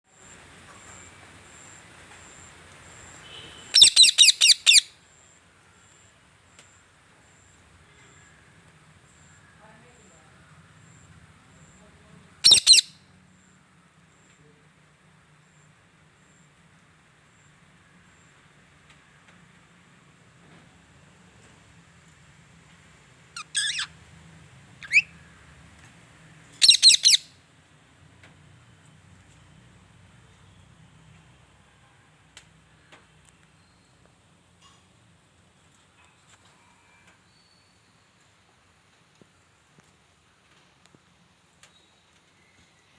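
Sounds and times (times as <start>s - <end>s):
parrot loud high calls: 3.7s - 4.9s, 12.4s - 12.9s, 23.4s - 23.9s, 24.8s - 25.1s, 26.6s - 27.3s.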